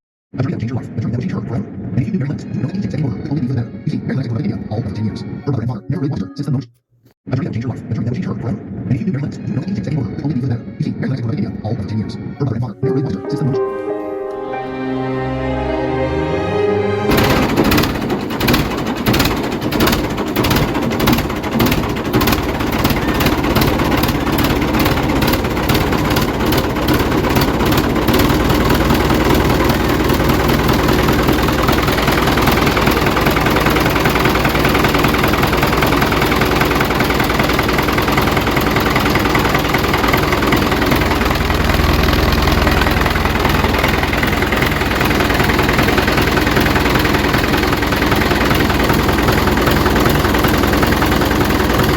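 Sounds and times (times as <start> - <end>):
engine running: 14.6 - 51.9.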